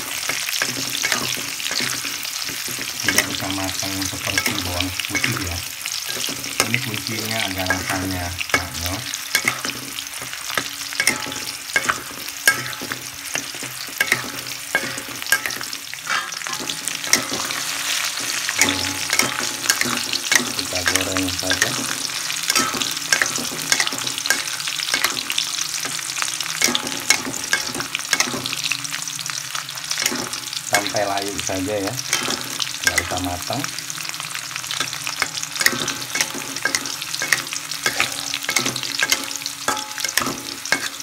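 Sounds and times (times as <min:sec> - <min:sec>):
metal spatula scraping a wok: 0:00.0 - 0:28.7, 0:34.3 - 0:41.0
shallots sizzling in hot oil: 0:00.0 - 0:41.0.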